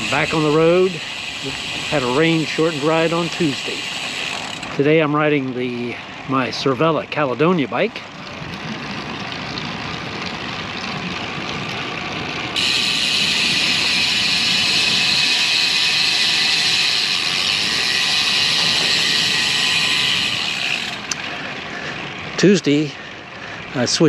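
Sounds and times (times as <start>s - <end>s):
wind and road noise rushing: 8.5s - 24.0s.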